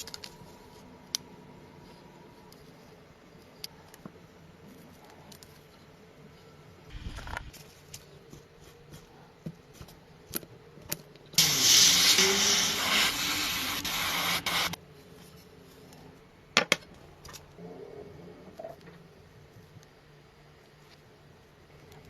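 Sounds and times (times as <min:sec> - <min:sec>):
spray hissing: 0:11.4 - 0:14.8.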